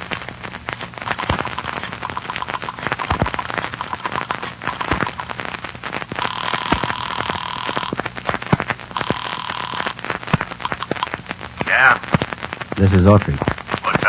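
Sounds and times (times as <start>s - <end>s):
faint low hum: 0.0s - 14.0s
record surface crackle and pops: 0.0s - 14.0s.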